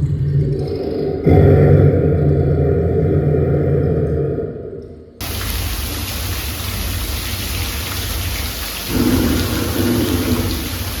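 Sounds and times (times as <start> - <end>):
steady rain falling: 5.2 - 11.0.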